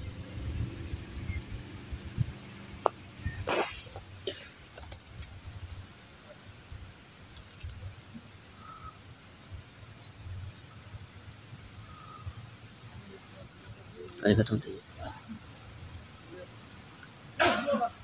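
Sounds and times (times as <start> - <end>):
high bird chirps: 0.9 - 3.9.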